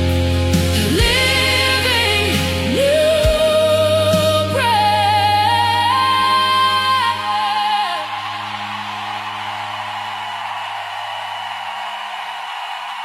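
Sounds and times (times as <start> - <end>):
sustained chords and bass: 0.0 - 11.6
person singing long wordless notes: 0.7 - 10.2.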